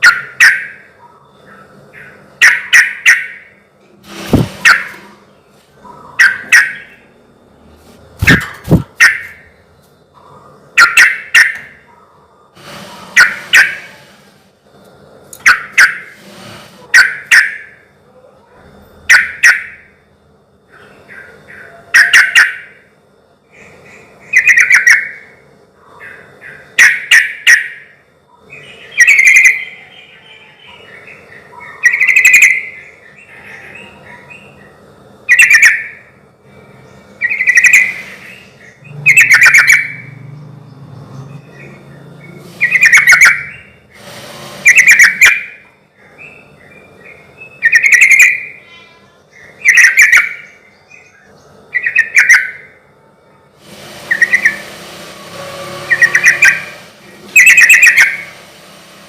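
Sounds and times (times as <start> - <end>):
bird singing bubbly phrases: 46.2 - 48.6.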